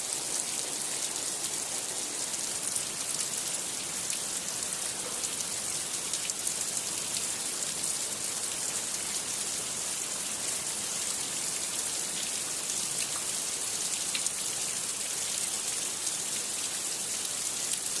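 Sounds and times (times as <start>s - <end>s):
rain on a hard surface: 0.0s - 18.0s.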